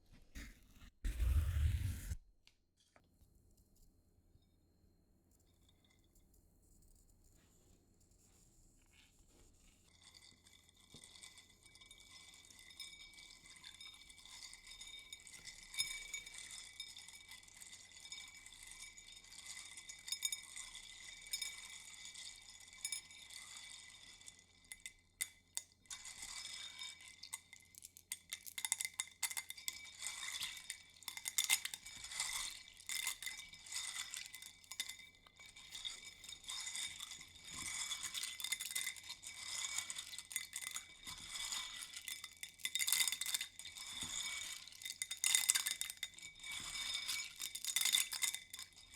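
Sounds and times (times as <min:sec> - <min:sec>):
small hard objects clinking: 0:10.9 - 0:48.9.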